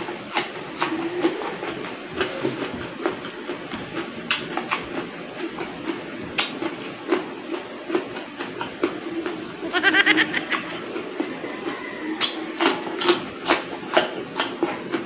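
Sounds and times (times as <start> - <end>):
person chewing cucumber: 0.3 - 9.4, 12.2 - 15.0.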